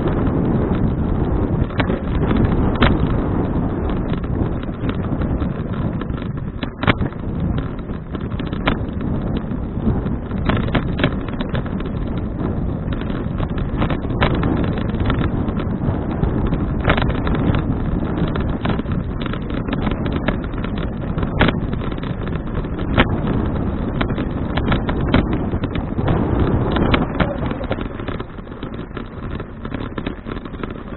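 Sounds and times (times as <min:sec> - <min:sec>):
wind buffeting microphone: 0:00.0 - 0:30.9
sharp clicks: 0:12.9 - 0:30.9.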